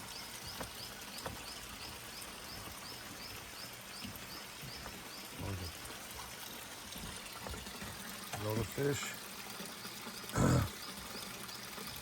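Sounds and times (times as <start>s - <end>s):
rainforest ambience: 0.0s - 9.2s, 10.3s - 11.5s.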